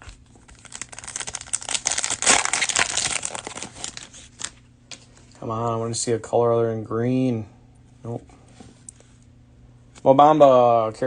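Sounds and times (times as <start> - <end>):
plastic wrapper crinkling: 0.3 - 5.0.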